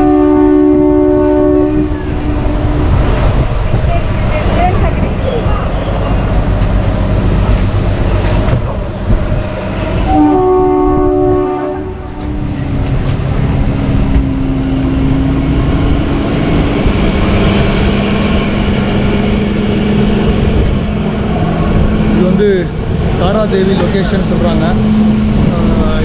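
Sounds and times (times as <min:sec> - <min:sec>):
train horn: 0:00.0 - 0:02.9, 0:10.0 - 0:12.4
train wheels rumbling: 0:00.0 - 0:26.0.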